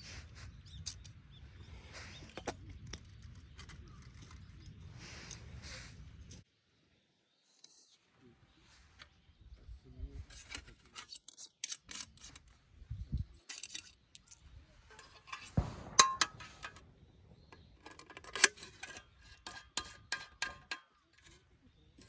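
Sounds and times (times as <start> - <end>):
light clicks and metal clinks: 0.6 - 1.2, 13.2 - 16.9, 17.8 - 22.0.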